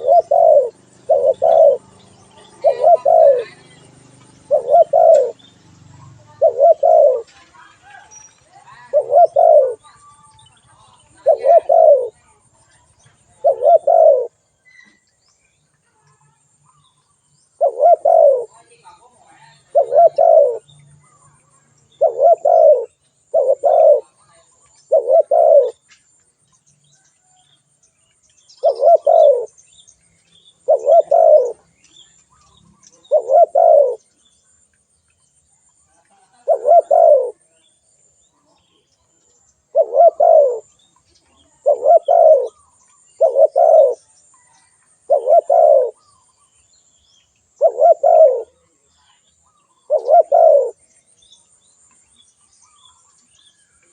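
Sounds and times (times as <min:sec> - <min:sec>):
dove cooing: 0:00.0 - 0:05.4, 0:06.2 - 0:07.5, 0:08.6 - 0:09.8, 0:10.7 - 0:12.4, 0:13.1 - 0:14.4, 0:17.4 - 0:25.9, 0:28.6 - 0:29.6, 0:30.6 - 0:31.7, 0:33.0 - 0:34.2, 0:36.2 - 0:37.7, 0:39.7 - 0:46.3, 0:47.6 - 0:48.9, 0:49.6 - 0:50.9.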